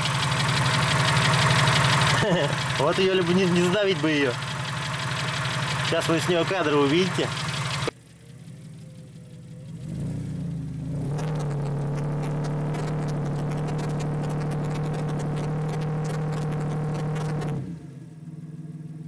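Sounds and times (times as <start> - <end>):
engine running under load: 0.0 - 19.0
fast clatter: 11.1 - 17.6.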